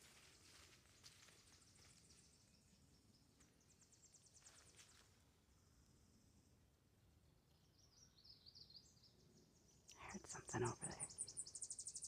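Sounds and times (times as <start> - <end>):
soft rustles or footsteps: 0.0 - 2.5, 4.2 - 5.3.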